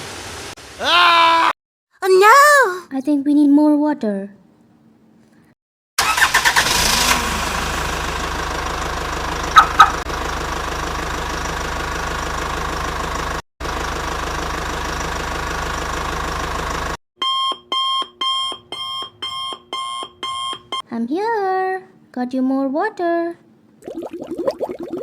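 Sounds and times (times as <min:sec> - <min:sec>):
truck engine running: 0:06.0 - 0:17.0
horn honks: 0:09.5 - 0:10.1
electronic warning beep: 0:09.6 - 0:10.0, 0:17.2 - 0:20.8.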